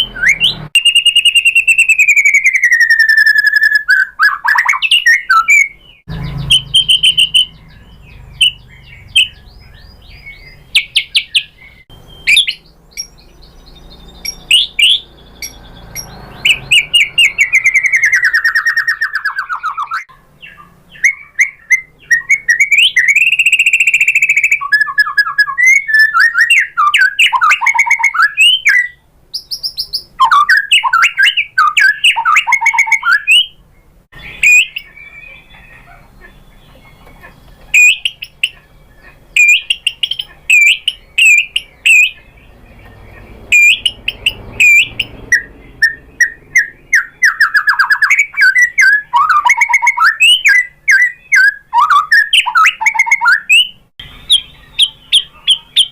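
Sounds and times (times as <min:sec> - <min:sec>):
bird singing whistled phrases: 0:00.0 - 0:33.6, 0:34.2 - 0:37.0, 0:37.7 - 0:55.9.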